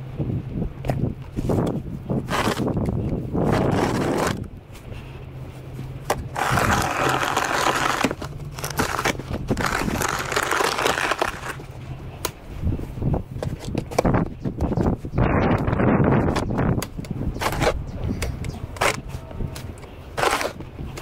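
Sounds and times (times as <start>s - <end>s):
steady low hum: 0.0s - 21.0s
snow shovel scraping pavement: 2.2s - 2.7s, 3.4s - 4.5s, 6.1s - 11.7s, 20.1s - 21.0s.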